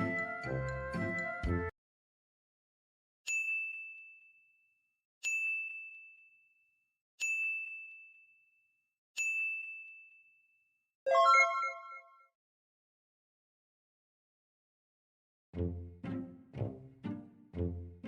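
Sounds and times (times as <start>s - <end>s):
high ding sound effect: 11.1s - 12.3s.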